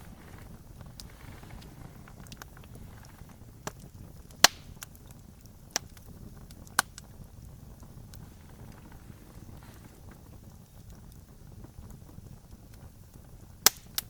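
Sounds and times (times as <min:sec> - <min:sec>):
campfire crackling: 0:00.0 - 0:14.0
sharp pops: 0:02.2 - 0:05.1, 0:13.6 - 0:14.0.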